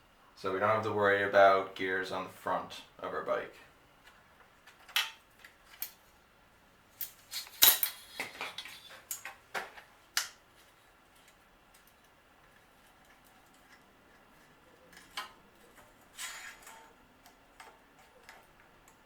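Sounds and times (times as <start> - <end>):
metal tools clinking: 7.0 - 9.3.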